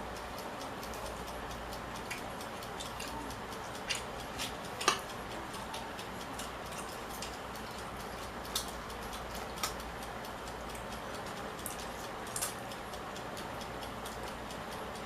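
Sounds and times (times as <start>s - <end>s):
cutlery clicking on plate: 3.8s - 7.8s, 11.6s - 12.6s.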